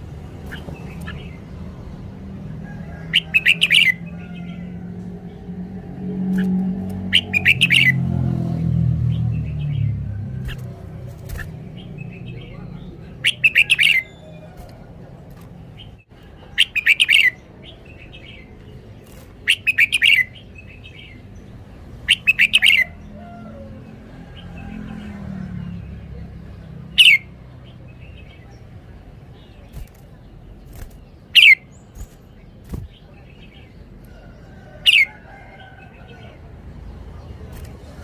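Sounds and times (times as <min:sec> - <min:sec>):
bird warbling: 0:06.4 - 0:08.0, 0:10.4 - 0:14.8, 0:30.9 - 0:32.2
sharp downward-sweeping bird calls: 0:07.1 - 0:08.0.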